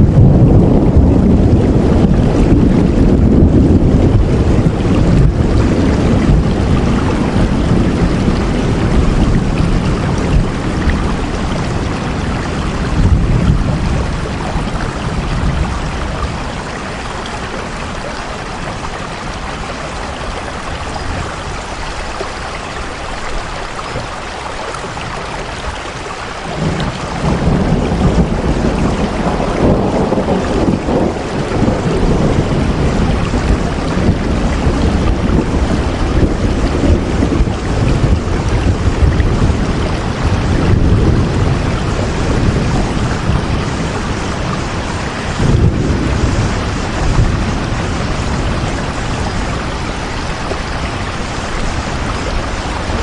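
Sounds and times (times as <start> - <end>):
deep low rumble: 0.0 - 16.6
steady rain: 0.0 - 53.0.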